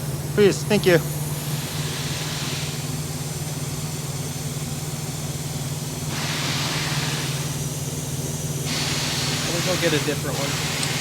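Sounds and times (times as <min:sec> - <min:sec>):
engine idling: 0:00.0 - 0:11.0
air hissing: 0:00.8 - 0:03.2, 0:05.5 - 0:11.0.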